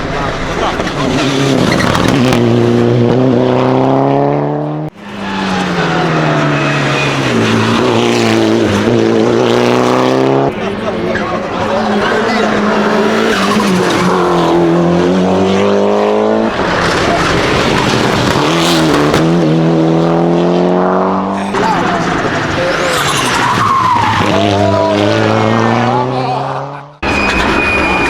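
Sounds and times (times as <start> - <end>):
race car engine accelerating: 0.0 - 28.0
tyre squeal: 1.1 - 2.2, 5.0 - 8.4, 9.9 - 14.8, 21.4 - 25.1, 27.0 - 28.0.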